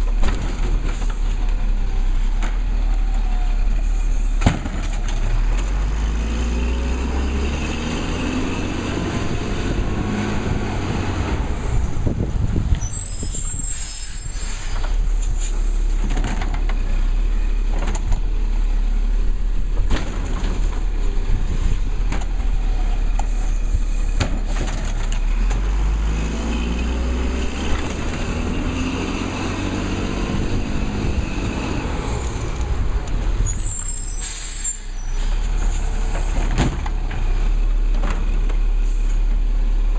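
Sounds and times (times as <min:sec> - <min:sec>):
garbage truck diesel engine revving: 0:05.0 - 0:12.1, 0:19.8 - 0:34.5
air brake hisses: 0:12.9 - 0:15.9, 0:33.6 - 0:35.5.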